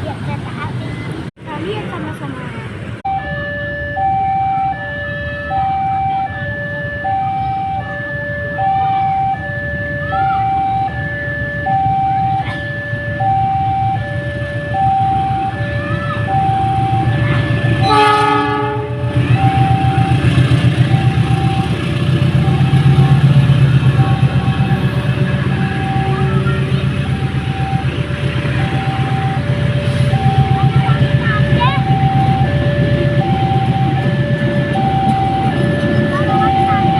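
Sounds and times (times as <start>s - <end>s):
train rumbling past: 0.0s - 36.9s
level crossing alarm two-tone: 3.1s - 36.9s
train horn: 17.8s - 20.1s.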